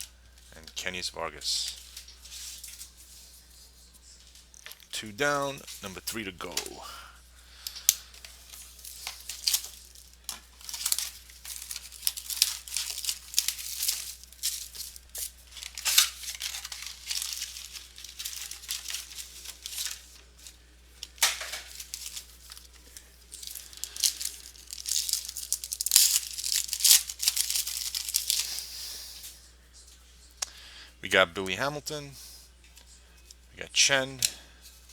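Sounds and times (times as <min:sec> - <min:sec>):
plastic wrapping crinkling: 0:01.6 - 0:30.0
plastic wrapping ripping: 0:07.9 - 0:28.8.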